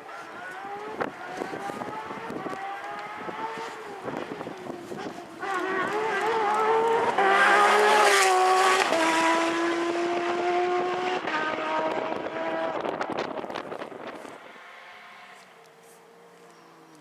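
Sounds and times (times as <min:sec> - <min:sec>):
tyre noise: 0:00.0 - 0:09.2
rally car engine at full throttle: 0:00.0 - 0:15.5.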